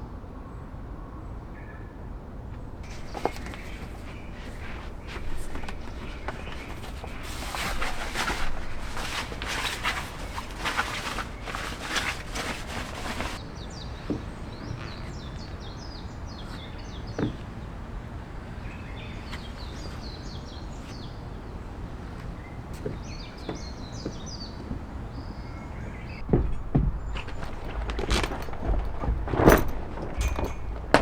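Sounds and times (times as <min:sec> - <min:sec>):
outdoor background noise: 0:00.0 - 0:31.0
rustling and crunching: 0:02.5 - 0:13.4, 0:21.8 - 0:31.0
small birds chirping: 0:02.5 - 0:31.0
soft knocks: 0:22.7 - 0:31.0.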